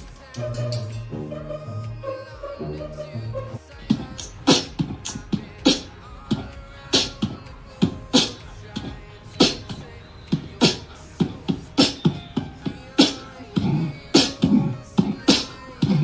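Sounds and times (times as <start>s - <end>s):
beatbox hissing snare strokes: 0.0s - 16.0s
beatbox kick thumps: 0.0s - 16.0s.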